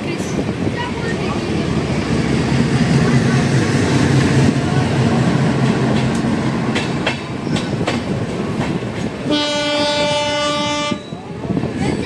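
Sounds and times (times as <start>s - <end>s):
train wheels rumbling on track: 0.0s - 12.0s
locomotive horn: 9.2s - 11.2s.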